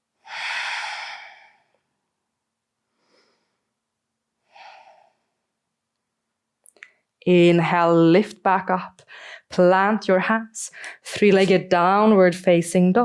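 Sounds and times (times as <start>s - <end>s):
person breathing: 0.2s - 2.0s, 2.9s - 3.8s, 4.4s - 5.5s, 9.0s - 9.5s, 10.7s - 11.1s.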